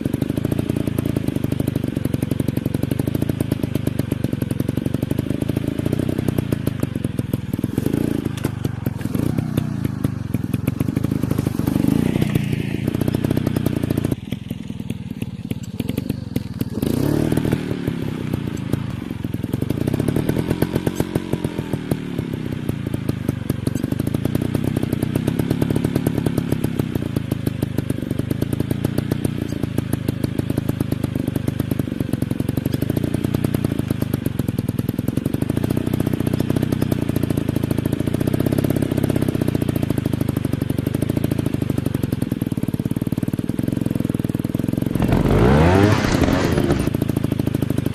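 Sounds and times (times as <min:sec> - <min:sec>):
dirt bike engine revving: 0:07.5 - 0:14.2, 0:15.8 - 0:19.0, 0:44.9 - 0:47.0.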